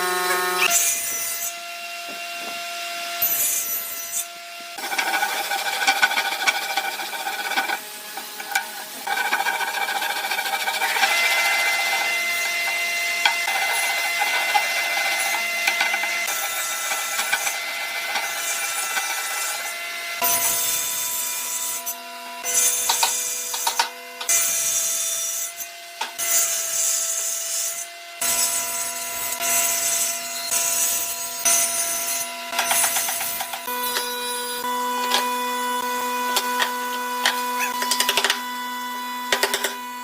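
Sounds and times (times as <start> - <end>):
tool scraping wood: 3.2 - 20.6, 39.2 - 39.8.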